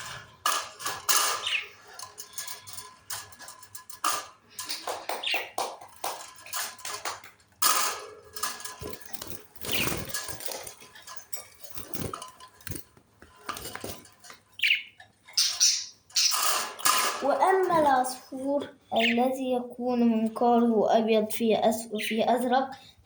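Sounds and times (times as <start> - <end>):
bird scuffling and flapping wings: 0.5 - 14.6
bird chirps: 14.6 - 16.6, 18.9 - 19.2.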